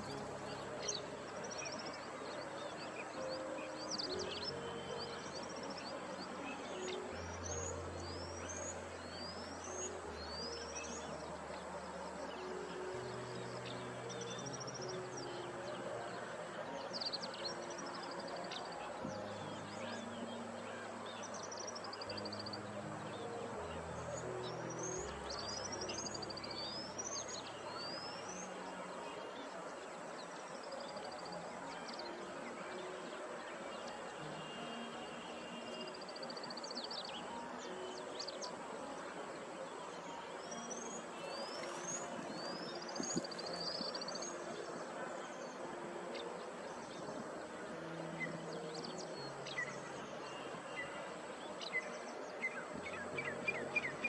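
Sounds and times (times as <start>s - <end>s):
birds chirping and trilling: 0.0s - 54.0s
soft ambient background music: 0.0s - 54.0s.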